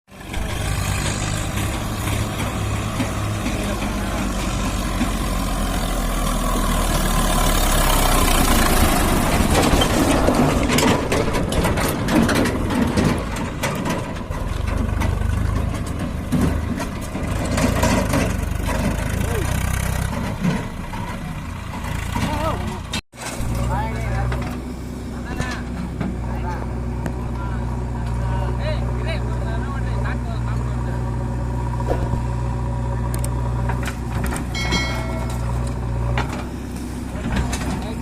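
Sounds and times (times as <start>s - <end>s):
tractor diesel engine running: 0.1s - 38.0s
knocks and clatter: 0.2s - 5.7s, 8.2s - 24.7s, 33.2s - 38.0s.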